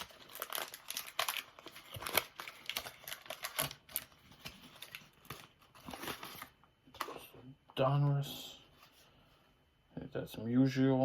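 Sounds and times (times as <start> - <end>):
cards and wrapper crinkling: 0.0 - 6.5.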